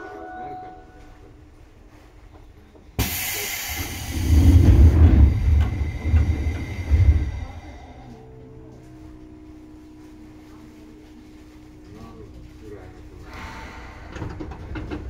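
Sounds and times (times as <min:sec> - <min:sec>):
electric train rumbling: 0:00.0 - 0:15.0
loud hiss: 0:03.0 - 0:05.4.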